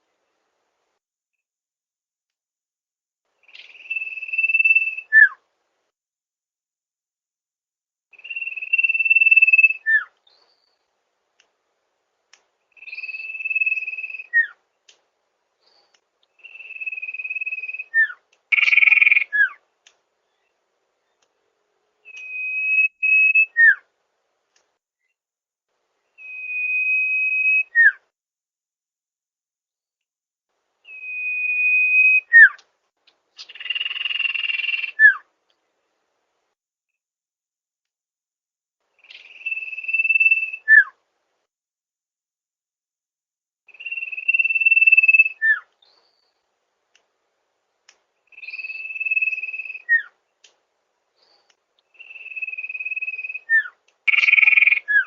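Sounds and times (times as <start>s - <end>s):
bird whistling song: 3.4s - 5.4s, 8.1s - 10.9s, 12.7s - 14.6s, 15.6s - 19.6s, 22.0s - 23.9s, 26.1s - 28.1s, 30.8s - 32.6s, 33.4s - 35.3s, 39.0s - 41.0s, 43.7s - 46.4s, 48.3s - 50.2s, 51.2s - 55.0s.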